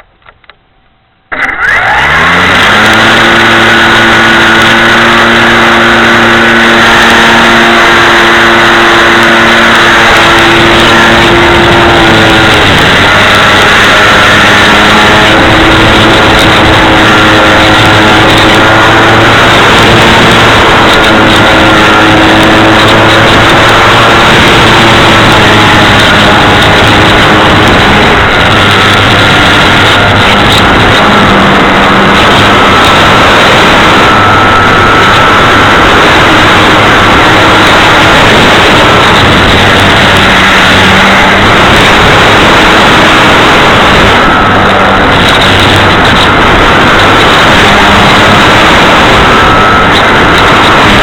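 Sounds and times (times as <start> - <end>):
model plane motor whine: 1.3 - 51.0
wind rushing over camera: 1.3 - 51.0.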